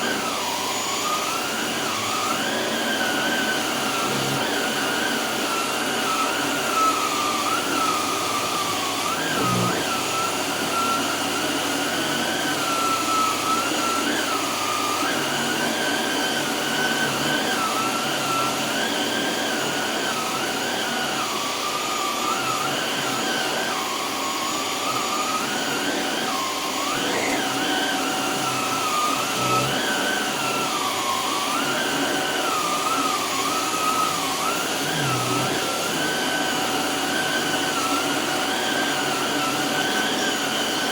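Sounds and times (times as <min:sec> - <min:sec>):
vacuum cleaner running: 0:00.0 - 0:40.9
whine rising and falling: 0:27.0 - 0:30.6.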